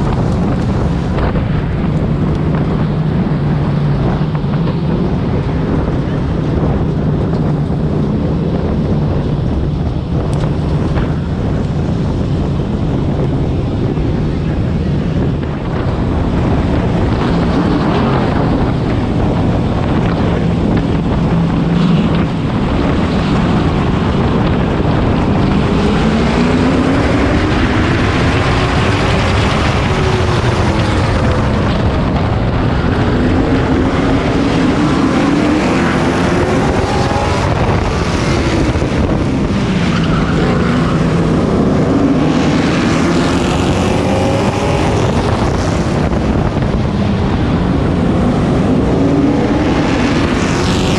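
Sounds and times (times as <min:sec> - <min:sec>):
race truck engine: 0:00.0 - 0:50.9.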